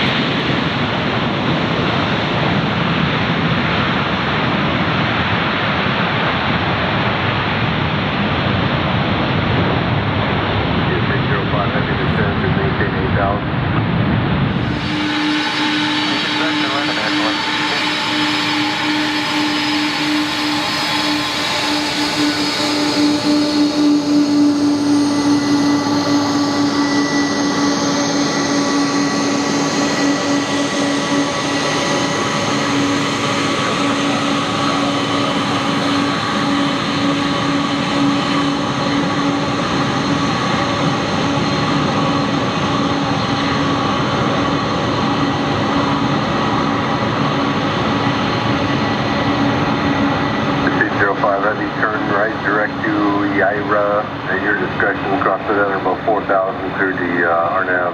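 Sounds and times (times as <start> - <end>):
jet engines whining: 0.0 - 57.9.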